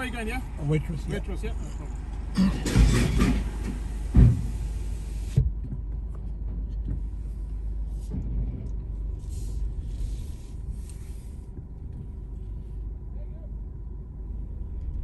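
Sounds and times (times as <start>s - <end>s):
car engine and road noise: 0.0s - 15.0s
soft hissing: 9.2s - 11.5s.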